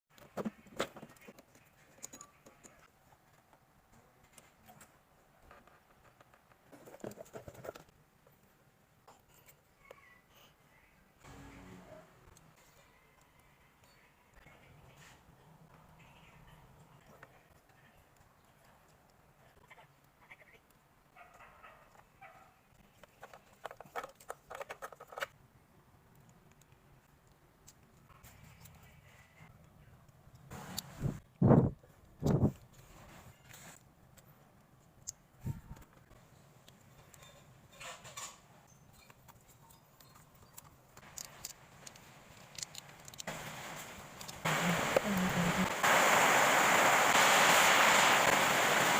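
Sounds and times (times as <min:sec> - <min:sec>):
hands handling wiring and connector: 0:39.0 - 0:43.3.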